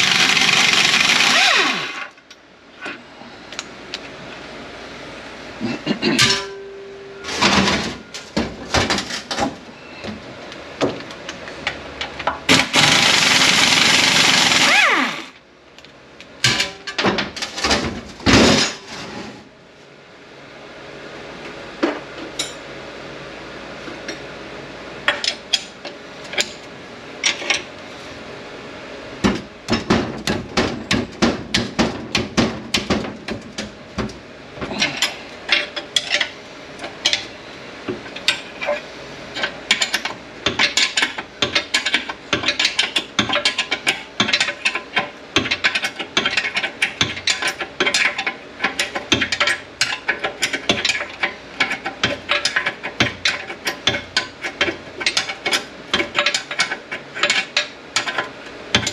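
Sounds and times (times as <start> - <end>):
tools clicking and tapping: 39.4 - 58.9.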